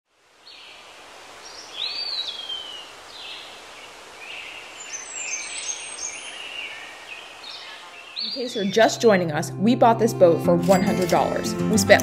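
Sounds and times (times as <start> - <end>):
steady background hiss: 0.1 - 8.8
bird calls: 0.5 - 9.1
higher bird chirps: 1.5 - 9.2.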